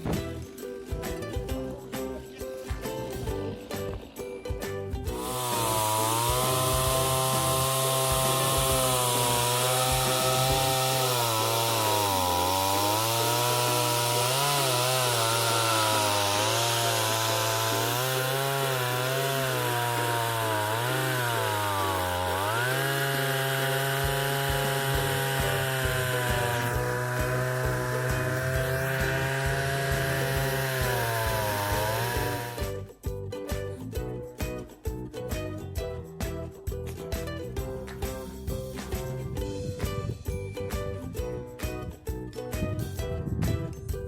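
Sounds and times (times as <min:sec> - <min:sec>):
chainsaw cutting wood: 0:00.0 - 0:00.7, 0:02.7 - 0:32.9.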